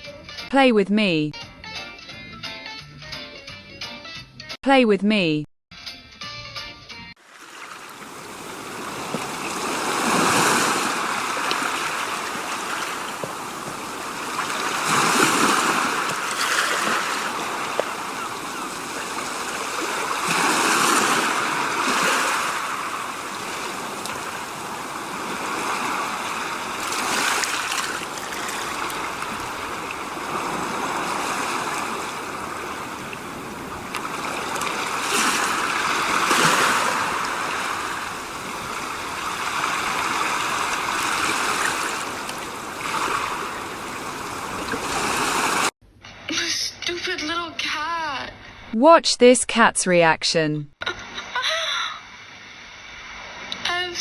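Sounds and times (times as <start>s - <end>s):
rushing water: 7.2s - 45.8s.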